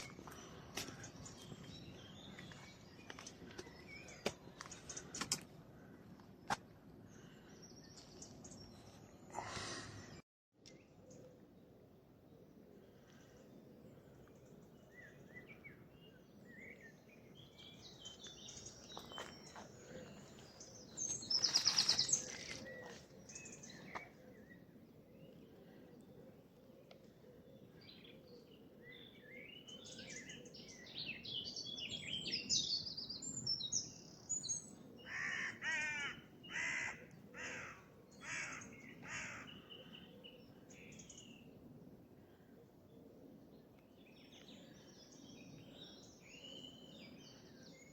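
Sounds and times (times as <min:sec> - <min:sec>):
songbirds singing: 0:00.0 - 0:47.9.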